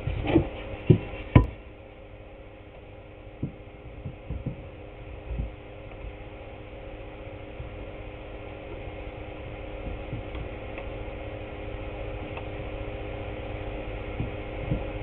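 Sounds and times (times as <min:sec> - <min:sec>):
electrical hum: 0:00.0 - 0:15.0
soft thumps: 0:03.4 - 0:05.6.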